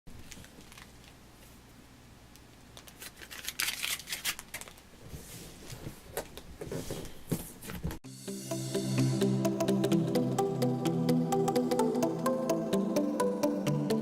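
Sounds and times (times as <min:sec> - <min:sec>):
packaging snipped and rustling: 0:02.8 - 0:04.9
electronic music: 0:08.0 - 0:14.0.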